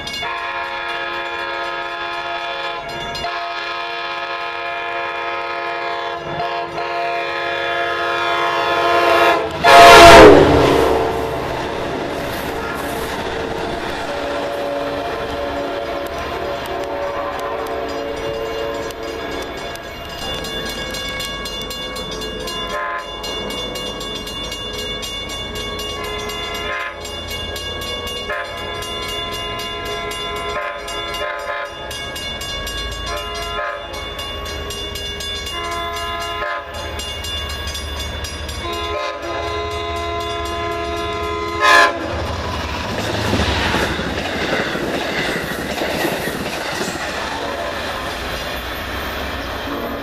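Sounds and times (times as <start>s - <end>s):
low train rumble: 0.0s - 50.0s
train air horn blasts: 0.2s - 12.8s, 13.4s - 19.4s, 22.7s - 23.1s, 26.0s - 27.0s, 28.2s - 28.9s, 29.8s - 31.9s, 33.1s - 34.0s, 35.5s - 36.9s, 38.6s - 42.4s.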